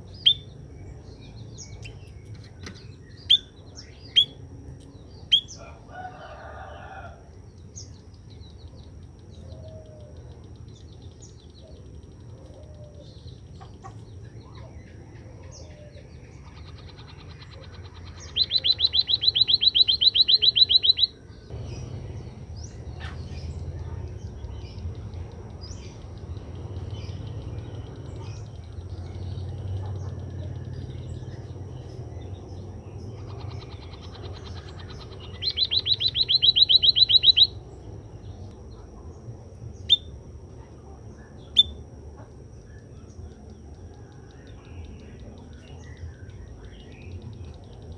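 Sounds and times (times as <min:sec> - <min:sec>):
bird trilling: 0:00.1 - 0:00.6, 0:01.5 - 0:04.4, 0:11.3 - 0:23.9, 0:25.6 - 0:37.9
low background rumble: 0:21.1 - 0:47.9.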